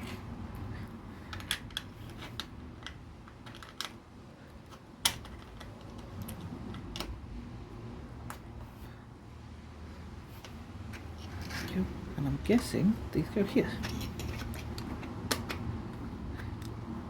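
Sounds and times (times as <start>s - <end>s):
plastic bricks clicking together: 1.3s - 4.0s, 13.8s - 15.7s.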